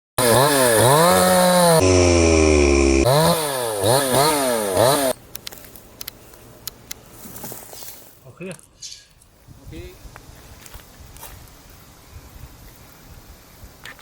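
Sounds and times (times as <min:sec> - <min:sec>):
chainsaw revving: 0:00.2 - 0:05.2.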